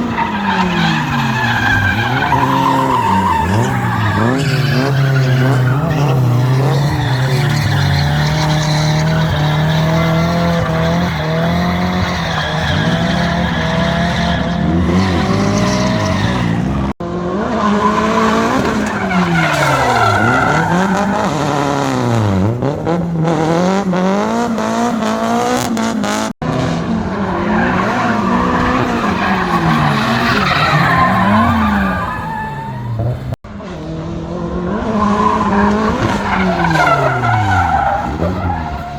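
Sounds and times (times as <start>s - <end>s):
tyres screeching: 0.0s - 16.8s, 17.8s - 22.1s, 27.4s - 33.4s, 35.0s - 38.9s
car engine revving: 0.0s - 38.9s.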